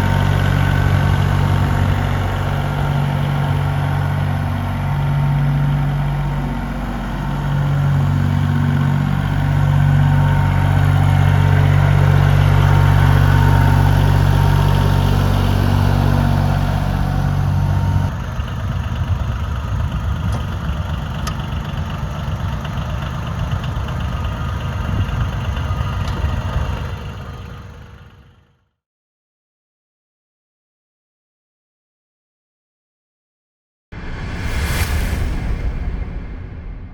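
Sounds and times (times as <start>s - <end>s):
tractor diesel engine running: 0.0s - 28.5s.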